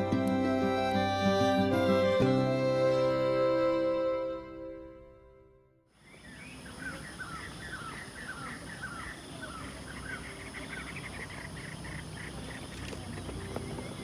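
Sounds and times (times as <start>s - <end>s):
bird chirping: 6.0s - 14.0s.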